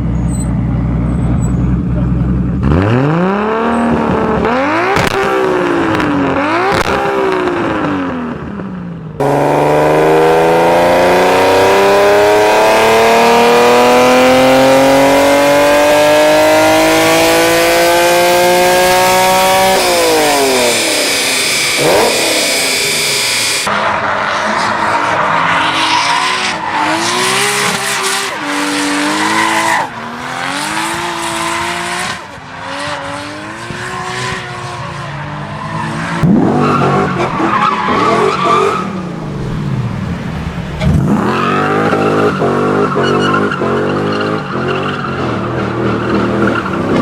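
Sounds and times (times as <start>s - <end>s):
sports car engine revving: 9.2s - 23.7s, 25.6s - 35.1s.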